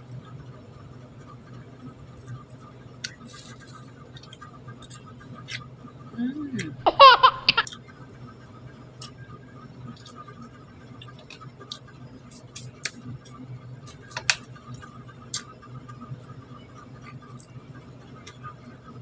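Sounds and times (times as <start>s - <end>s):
steady low hum: 0.6s - 19.0s
wet chewing clicks and smacks: 15.3s - 15.5s.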